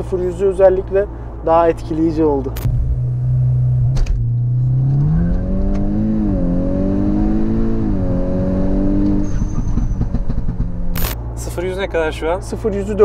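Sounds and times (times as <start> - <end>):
car engine accelerating: 2.5 - 11.6.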